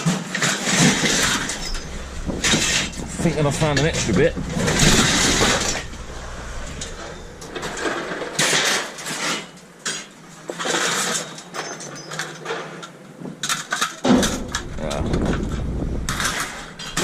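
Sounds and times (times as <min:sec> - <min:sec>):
scrap metal clanking and scraping: 0:00.3 - 0:11.8.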